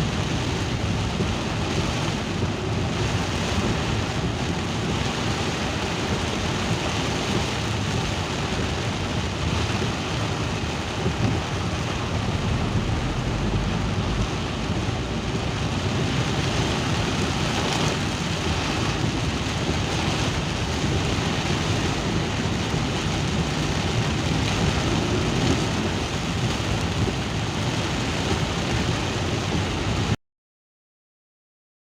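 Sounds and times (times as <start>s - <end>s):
steady rain: 0.0s - 30.2s
low rumble: 10.2s - 27.1s.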